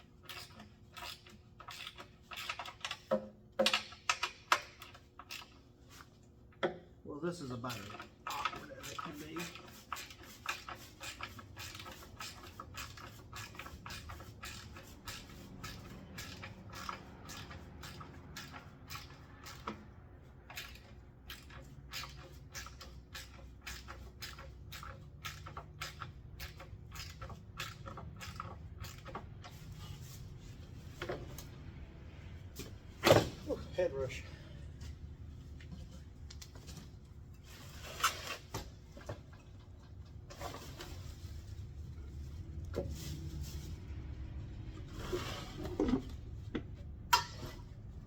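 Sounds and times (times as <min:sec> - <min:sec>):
hand ratchet clicking: 0:00.2 - 0:06.0, 0:07.6 - 0:29.8.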